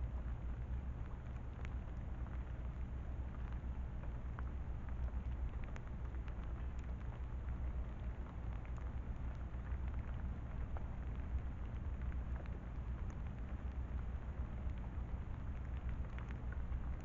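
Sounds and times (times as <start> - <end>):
rain pattering: 0.0 - 17.0.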